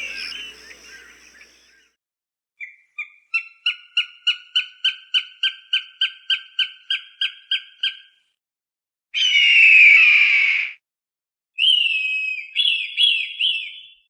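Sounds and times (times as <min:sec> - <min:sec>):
falcon sharp repeated calls: 0:00.0 - 0:01.6.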